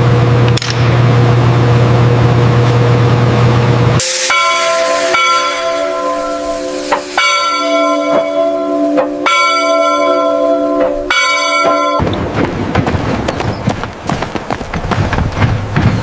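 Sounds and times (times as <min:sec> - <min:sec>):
rushing hiss: 0:04.0 - 0:08.4
bell ringing: 0:04.0 - 0:12.0.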